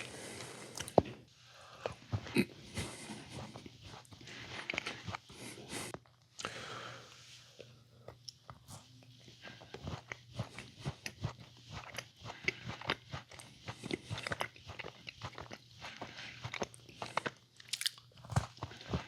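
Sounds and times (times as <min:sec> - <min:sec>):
person chewing crunchy food: 0:01.7 - 0:06.0, 0:09.4 - 0:19.0.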